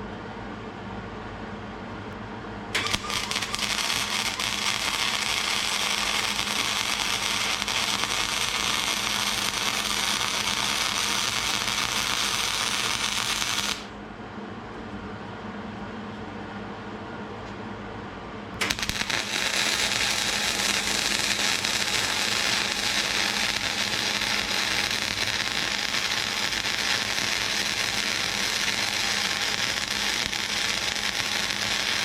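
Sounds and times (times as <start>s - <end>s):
welder arc crackling and sizzling: 2.8s - 14.0s, 18.6s - 32.0s.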